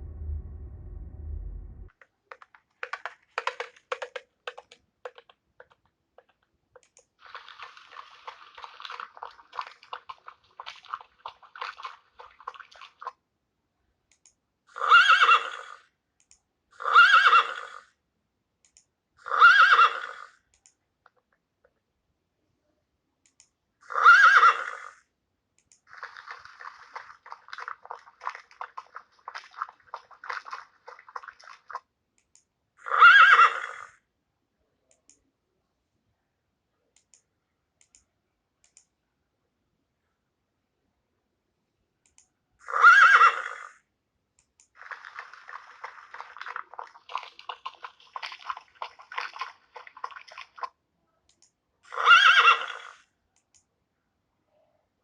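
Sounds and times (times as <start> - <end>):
horse whinnying: 14.7 - 15.8, 16.8 - 17.9, 19.2 - 20.4, 23.8 - 25.0, 32.8 - 34.0, 42.6 - 43.8, 51.9 - 53.0.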